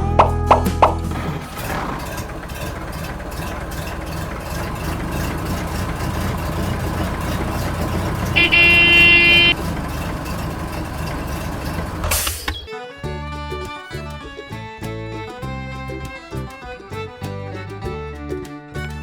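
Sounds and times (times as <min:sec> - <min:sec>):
vehicle engine chugging: 0:00.0 - 0:12.5, 0:13.1 - 0:19.0
vehicle horn: 0:05.6 - 0:12.0.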